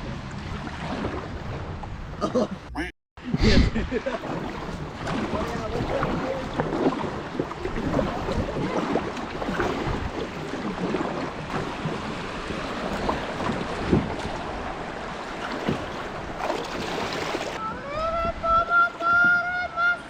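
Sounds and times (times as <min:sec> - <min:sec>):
wind buffeting microphone: 0:03.3 - 0:19.6
river water rushing and splashing: 0:04.0 - 0:18.0.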